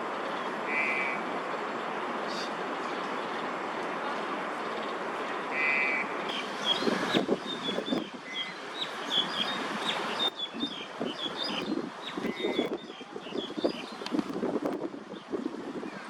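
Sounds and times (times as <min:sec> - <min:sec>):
city traffic rumble: 0:00.0 - 0:16.0
small birds chirping: 0:05.7 - 0:16.0.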